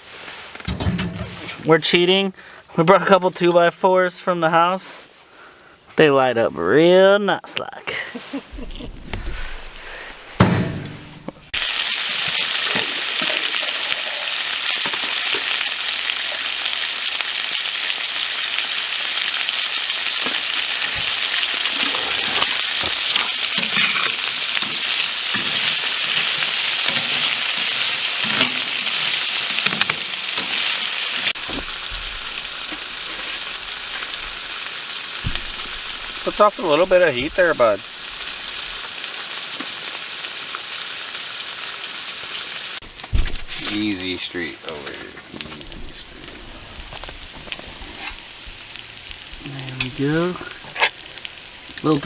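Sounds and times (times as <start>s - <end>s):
food sizzling in a pan: 11.4s - 52.0s.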